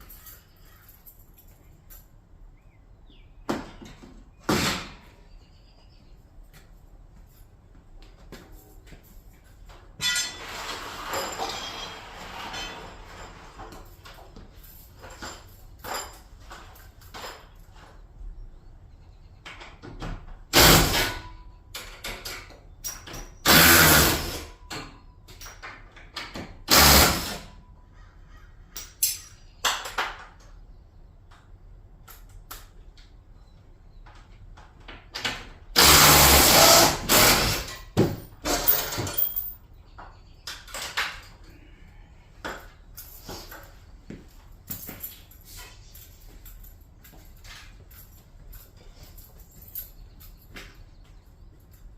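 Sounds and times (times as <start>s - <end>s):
power drill running in bursts: 23.4s - 24.5s, 26.7s - 27.5s, 35.8s - 37.7s.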